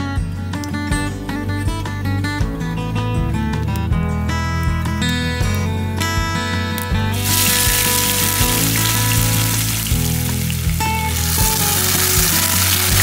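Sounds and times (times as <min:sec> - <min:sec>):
food sizzling in hot oil: 0:07.2 - 0:13.0.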